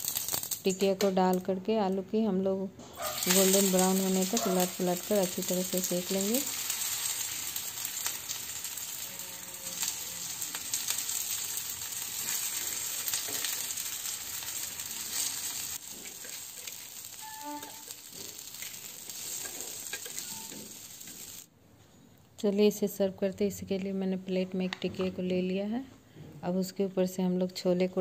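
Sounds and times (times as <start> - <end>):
patties sizzling in hot oil: 0.0 - 1.0, 3.0 - 21.5.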